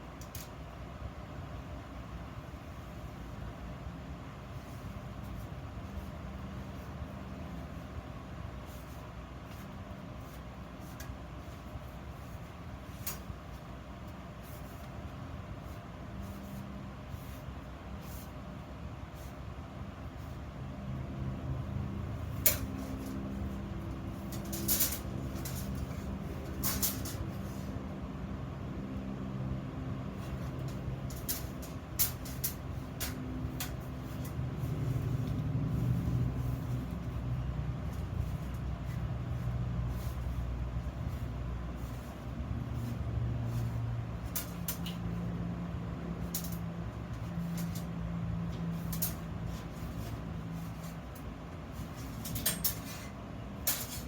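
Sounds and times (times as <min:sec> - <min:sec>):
iron workpieces clicking and knocking: 0:24.2 - 0:27.4, 0:52.1 - 0:54.0.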